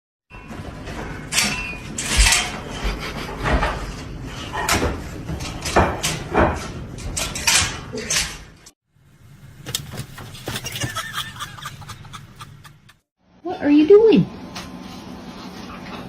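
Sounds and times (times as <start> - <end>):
hard objects clattering and knocking: 0.3 - 8.7.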